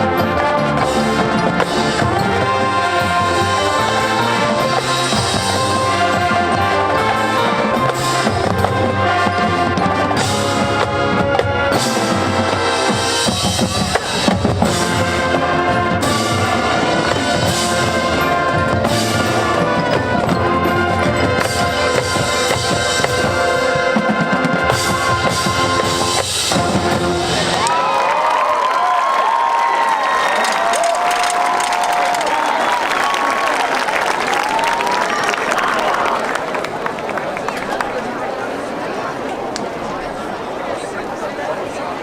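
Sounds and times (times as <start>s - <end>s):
brass playing tune: 0.0s - 27.7s
drumline and bass drums: 0.0s - 33.3s
marching band playing: 0.0s - 38.1s.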